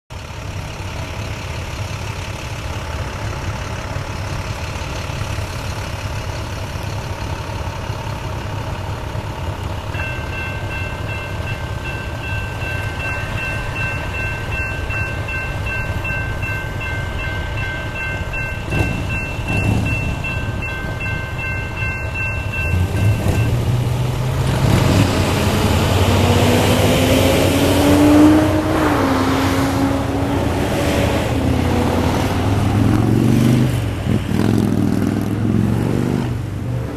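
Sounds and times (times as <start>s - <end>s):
freight train rumbling: 0.1s - 36.9s
high-pitched ringing tone: 9.9s - 23.9s.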